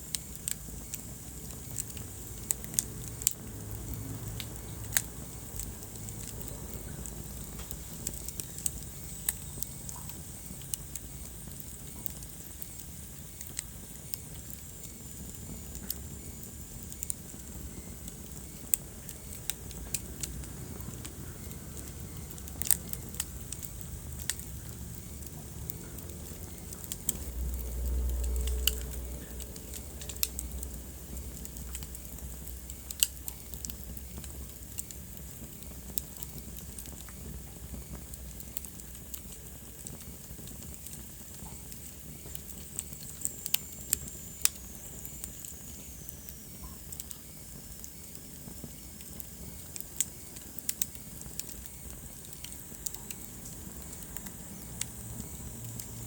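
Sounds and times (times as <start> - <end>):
fire pops and snaps: 0.0 - 56.0
low rumble of flames: 0.0 - 56.0
wood fire crackling: 0.0 - 56.0
deeper rumble: 19.6 - 32.6.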